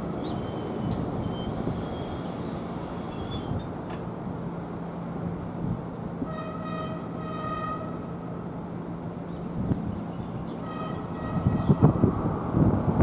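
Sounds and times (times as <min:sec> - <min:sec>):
train horn blasts: 0:06.2 - 0:08.5, 0:10.6 - 0:12.4
wind gusts on microphone: 0:09.4 - 0:13.0.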